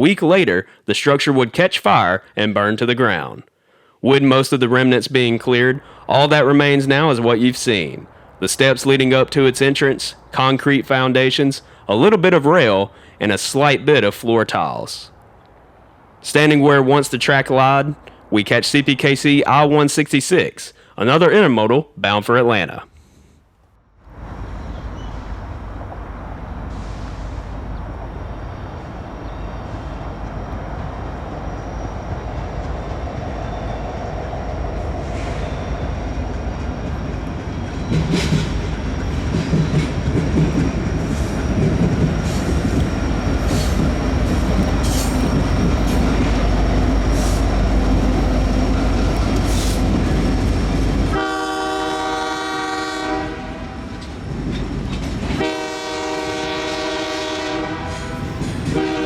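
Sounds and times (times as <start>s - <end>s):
diesel locomotive rumble: 5.0s - 19.6s, 24.1s - 59.0s
train wheel clatter: 34.6s - 51.1s, 53.9s - 55.7s, 57.9s - 59.0s
locomotive air horn blast: 51.1s - 54.0s, 55.4s - 59.0s.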